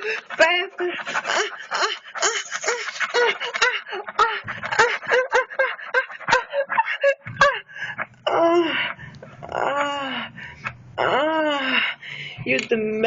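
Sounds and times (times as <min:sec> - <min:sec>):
woman moaning and gasping: 0:01.2 - 0:04.9, 0:06.7 - 0:12.2.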